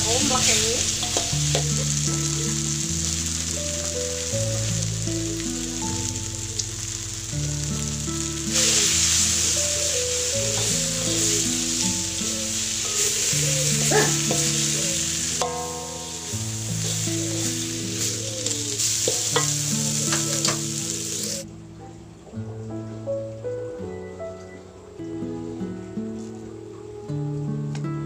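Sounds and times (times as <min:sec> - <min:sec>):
food sizzling in a wok: 0:00.0 - 0:21.5
background music: 0:00.0 - 0:28.0
metal spatula scraping a pan: 0:00.3 - 0:02.0, 0:12.8 - 0:16.2, 0:18.8 - 0:20.6.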